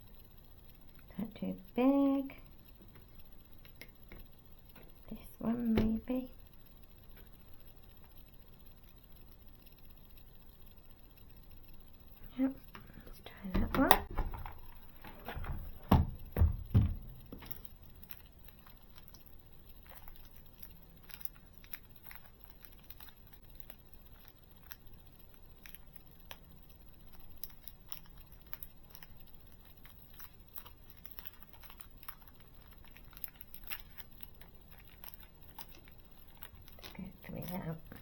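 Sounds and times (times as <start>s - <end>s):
knocks: 13.6s - 17.5s.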